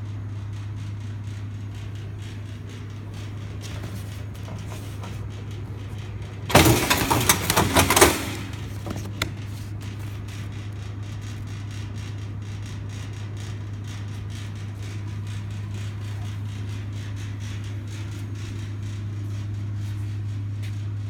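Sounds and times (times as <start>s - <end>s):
binding machine humming: 1.1s - 20.5s
mechanism clattering: 1.8s - 11.3s.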